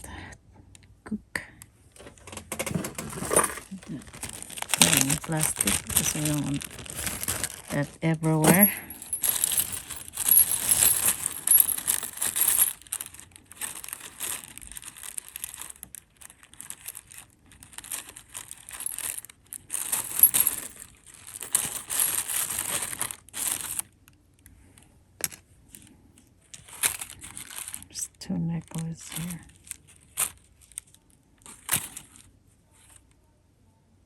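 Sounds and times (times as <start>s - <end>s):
plastic bag crinkling: 2.1s - 24.0s, 26.5s - 28.0s, 28.6s - 32.3s
jewelry clinking: 2.5s - 16.0s, 16.8s - 23.8s.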